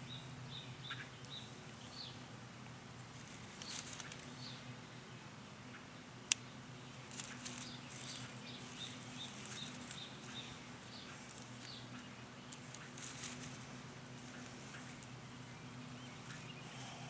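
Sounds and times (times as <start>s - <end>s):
hands rustling in plants and soil: 2.6s - 4.5s, 6.9s - 17.0s.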